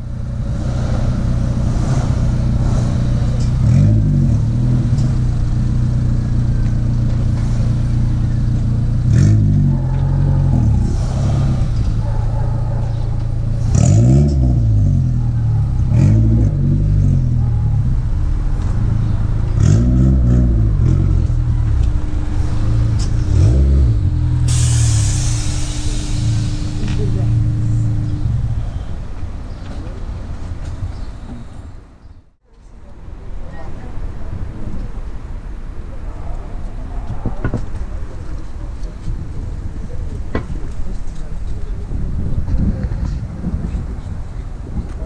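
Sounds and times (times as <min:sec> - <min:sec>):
engine throttle blips: 0:00.0 - 0:31.7
car engine idling: 0:00.0 - 0:32.0.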